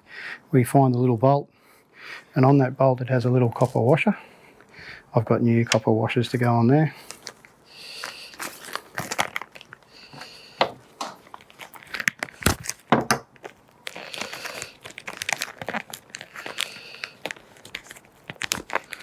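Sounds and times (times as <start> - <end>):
plastic packaging crinkling and tearing: 5.6 - 19.0.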